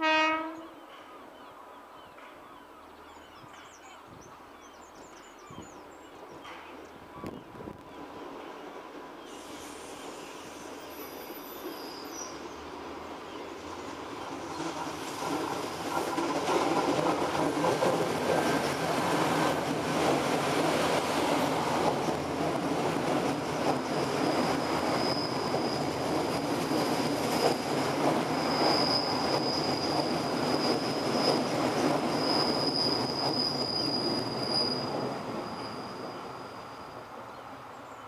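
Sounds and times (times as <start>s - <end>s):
train rumbling past: 0.0s - 38.0s
high-pitched wheel squeal: 24.2s - 26.1s, 28.3s - 37.1s.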